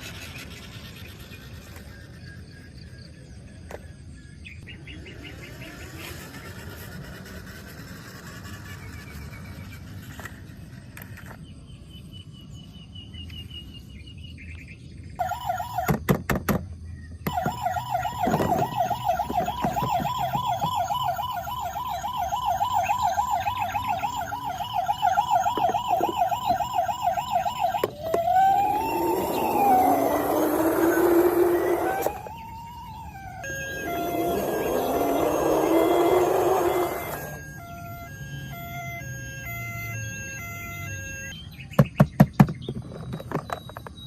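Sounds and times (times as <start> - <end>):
toy electronic siren warbling: 4.8 - 9.6, 15.2 - 16.0, 17.2 - 41.4.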